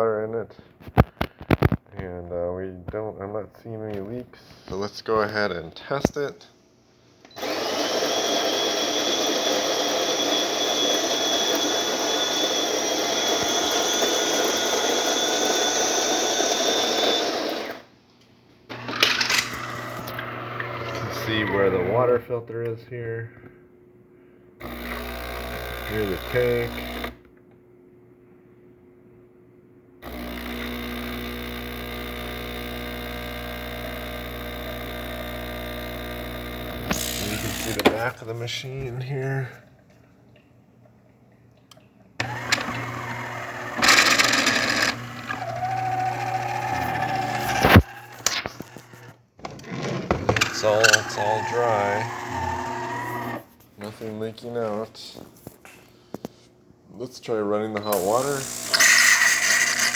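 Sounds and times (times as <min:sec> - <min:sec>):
espresso machine high whine: 0:07.4 - 0:17.9, 0:18.7 - 0:22.1, 0:24.6 - 0:27.2, 0:30.0 - 0:38.2, 0:42.2 - 0:49.1, 0:50.1 - 0:53.5, 0:57.9 - 0:59.9.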